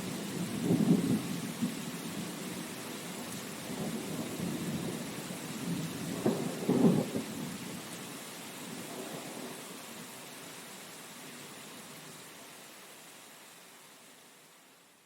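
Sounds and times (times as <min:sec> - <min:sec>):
rain hiss: 0:00.0 - 0:15.0.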